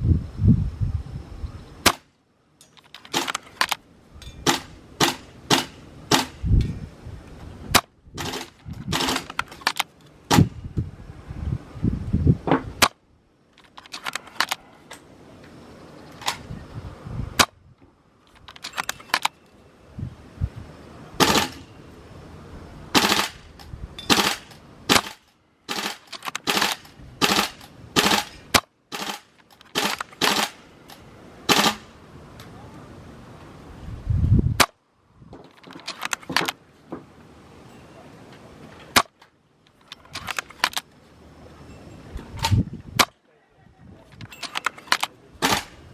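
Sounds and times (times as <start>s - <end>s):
wind rumbling on microphone: 0.0s - 1.9s, 3.4s - 12.9s, 14.1s - 19.0s, 19.7s - 25.0s, 26.6s - 28.6s, 32.0s - 35.6s, 39.9s - 45.9s
airsoft rifle clacks and clicks: 2.6s - 3.8s, 7.8s - 10.5s, 13.6s - 15.0s, 18.3s - 19.4s, 23.0s - 31.9s, 35.4s - 36.6s, 39.0s - 40.9s, 44.1s - 45.8s.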